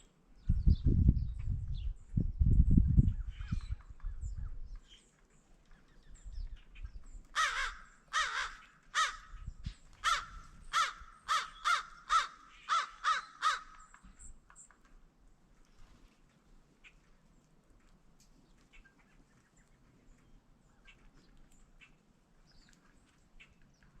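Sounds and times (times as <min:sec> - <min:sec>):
small birds chirping: 0:00.0 - 0:17.6, 0:18.2 - 0:24.0
crow cawing: 0:07.4 - 0:09.4, 0:10.0 - 0:13.9.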